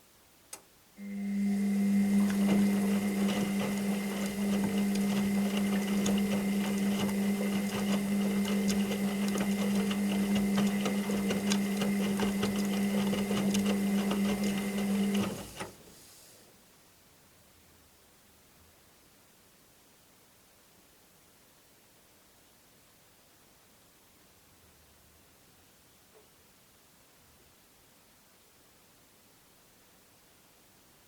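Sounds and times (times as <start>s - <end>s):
washing machine motor whirring: 1.0s - 15.9s.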